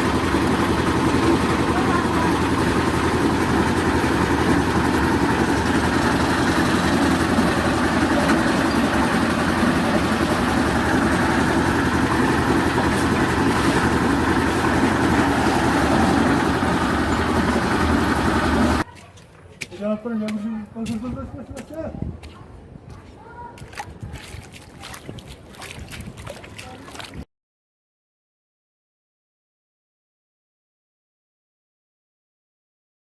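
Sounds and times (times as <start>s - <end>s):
engine running steadily: 0.0s - 18.9s.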